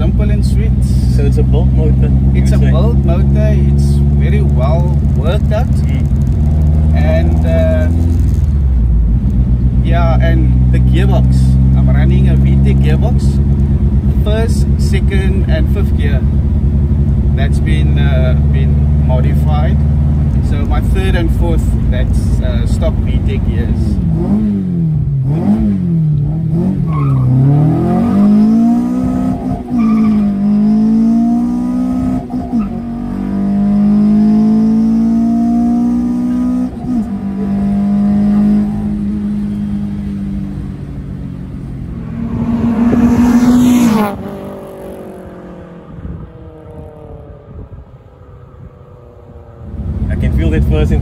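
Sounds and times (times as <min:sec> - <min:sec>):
car engine revving high: 0:24.0 - 0:51.0.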